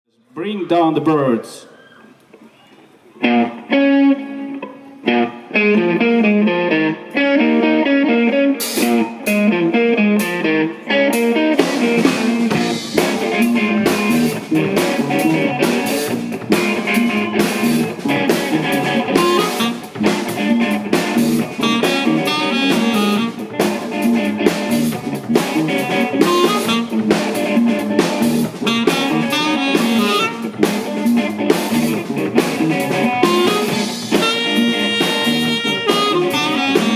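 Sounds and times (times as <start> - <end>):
band playing soul-jazz: 3.2 - 36.9
plucked guitar notes: 3.2 - 36.9.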